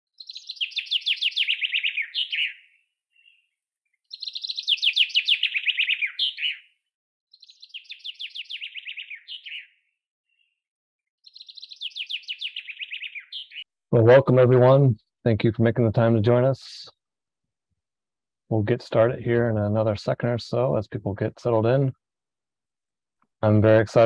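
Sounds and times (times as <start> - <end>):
songbird singing: 0.1 - 10.6, 11.2 - 17.0.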